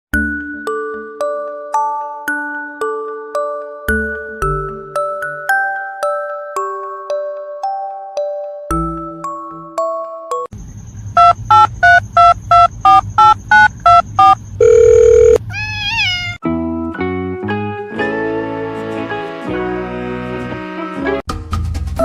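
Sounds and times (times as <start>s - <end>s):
music with chime-like notes: 0.2s - 10.5s
long steady beep: 11.1s - 15.4s
loud electronic beeps: 11.1s - 15.4s.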